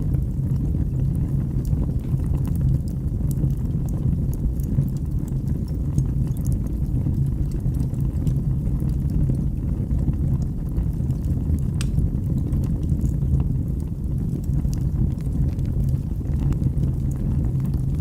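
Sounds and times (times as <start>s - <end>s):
fire crackling: 0.0s - 18.0s
fire flames rumbling: 0.0s - 18.0s
sharp pop of fire: 11.7s - 12.1s.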